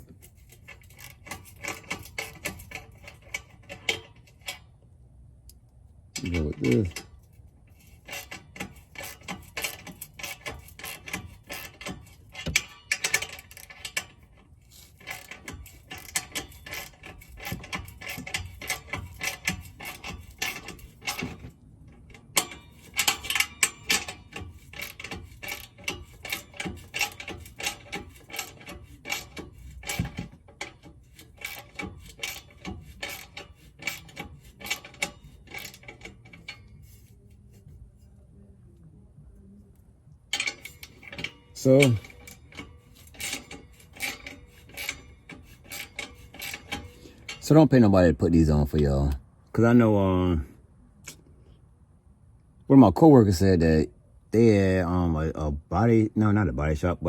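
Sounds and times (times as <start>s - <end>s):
ratchet wrench clicking: 0.3s - 4.6s, 6.2s - 37.1s, 40.3s - 47.4s.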